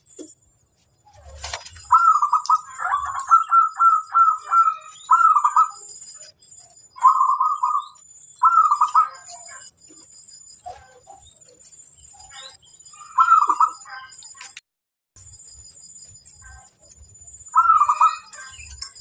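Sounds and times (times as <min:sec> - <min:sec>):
dove cooing: 0:01.1 - 0:05.9, 0:07.0 - 0:09.7, 0:13.1 - 0:13.9, 0:17.6 - 0:18.6.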